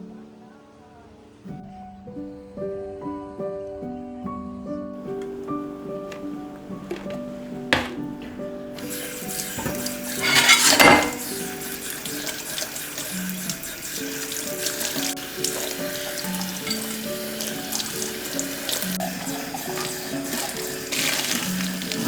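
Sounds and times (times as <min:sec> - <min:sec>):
soft background music: 0:00.0 - 0:22.0
tap water running into sink: 0:05.1 - 0:22.0.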